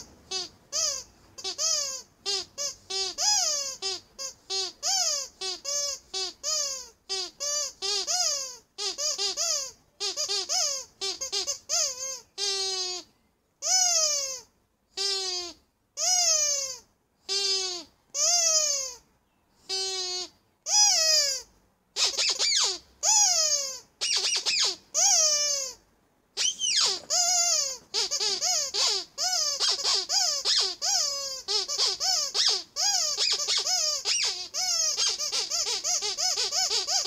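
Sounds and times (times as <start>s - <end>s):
rubber squeaky toy squeaking: 0.0s - 19.0s, 19.6s - 25.8s, 26.4s - 37.0s.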